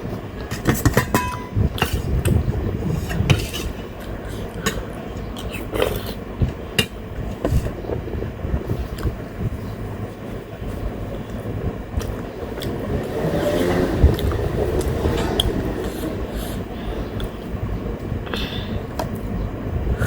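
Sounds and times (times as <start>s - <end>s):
electric fan humming: 0.0s - 20.0s
cutlery scraping on a plate: 3.0s - 3.8s.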